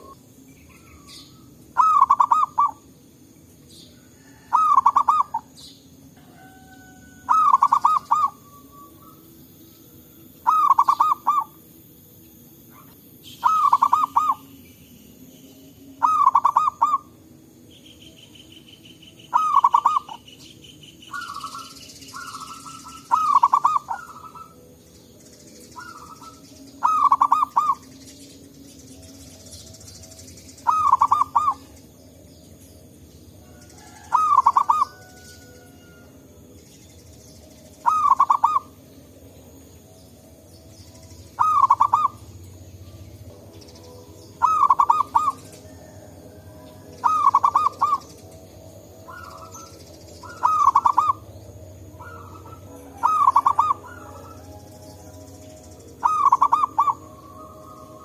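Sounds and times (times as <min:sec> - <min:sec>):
dove cooing: 0:00.0 - 0:02.9, 0:04.0 - 0:09.3, 0:10.4 - 0:11.6, 0:12.7 - 0:14.6, 0:16.0 - 0:17.2, 0:19.2 - 0:20.3, 0:21.1 - 0:24.8, 0:25.8 - 0:27.9, 0:30.6 - 0:31.8, 0:33.5 - 0:36.1, 0:37.8 - 0:38.8, 0:41.4 - 0:43.0, 0:44.4 - 0:48.2, 0:49.0 - 0:58.0.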